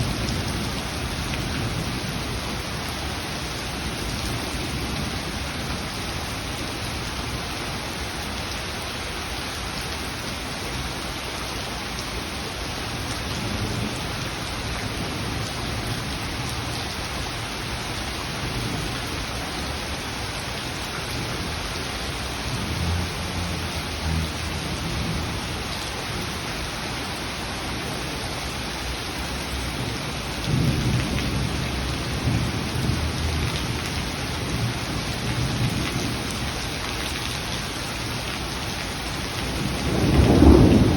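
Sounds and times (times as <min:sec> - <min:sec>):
steady rain falling: 0:00.0 - 0:40.9
thunder rumbling: 0:29.7 - 0:36.4, 0:39.4 - 0:40.9.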